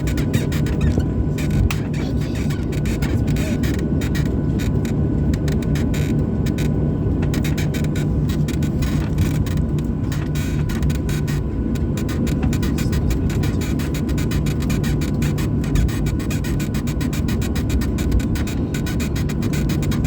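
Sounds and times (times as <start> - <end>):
airplane cabin rumble: 0.0 - 20.0
light rattles and knocks: 0.0 - 20.0.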